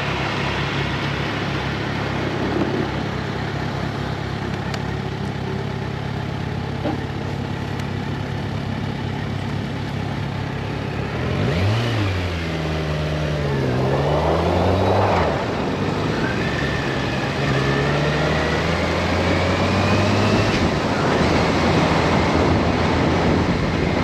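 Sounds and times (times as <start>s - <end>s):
motorcycle engine idling: 2.9s - 11.1s.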